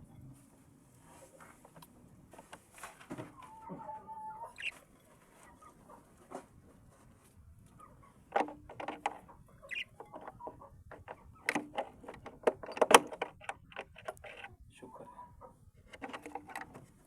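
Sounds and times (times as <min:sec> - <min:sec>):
birds calling low: 0:03.4 - 0:05.8, 0:07.8 - 0:12.9
clicks and knocks in cage: 0:08.3 - 0:14.5, 0:15.9 - 0:16.8.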